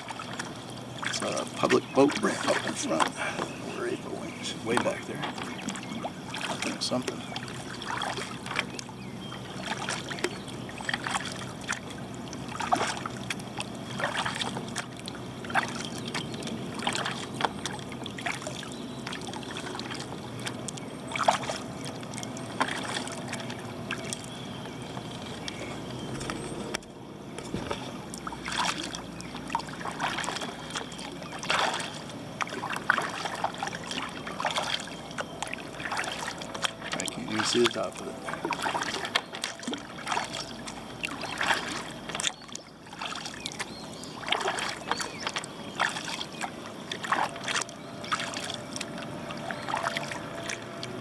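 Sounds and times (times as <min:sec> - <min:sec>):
paddle splashing in water: 0:00.0 - 0:51.0
water dripping: 0:27.6 - 0:51.0.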